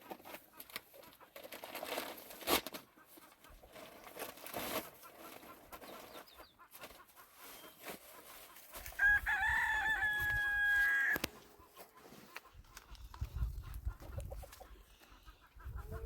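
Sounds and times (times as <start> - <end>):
rooster crowing: 9.0 - 11.3.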